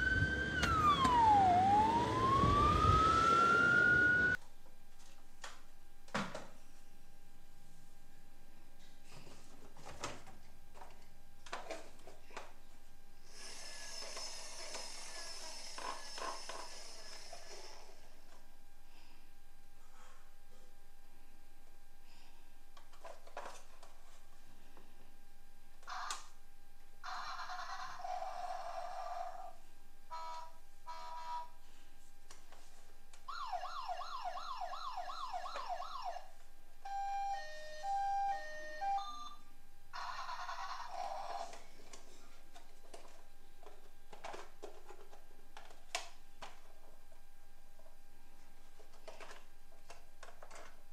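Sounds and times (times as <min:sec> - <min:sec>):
toy siren: 0:00.0 - 0:04.4, 0:25.8 - 0:26.4, 0:27.0 - 0:31.6, 0:33.3 - 0:39.4
plastic toys clicking and knocking: 0:40.0 - 0:46.7, 0:48.8 - 0:50.8.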